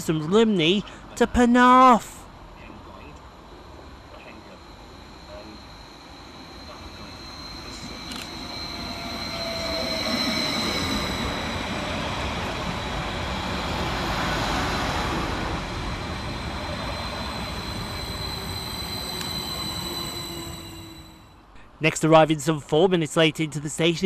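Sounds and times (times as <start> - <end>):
high-pitched train whine: 0.0 - 21.6
train wheels rumbling on rails: 2.0 - 21.5.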